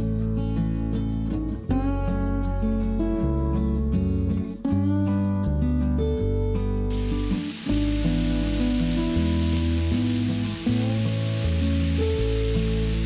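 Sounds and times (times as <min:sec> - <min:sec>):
background music with bass: 0:00.0 - 0:13.0
meat sizzling on a griddle: 0:06.9 - 0:13.0.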